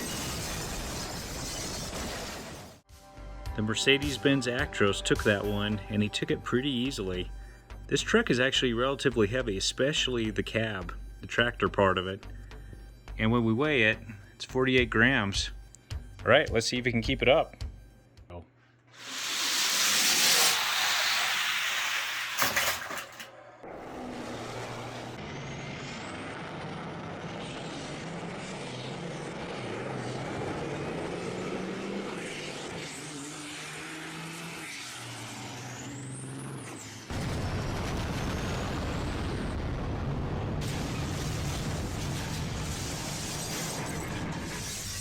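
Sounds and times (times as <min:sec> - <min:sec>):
diesel truck engine shifting gears: 0:23.6 - 0:37.2.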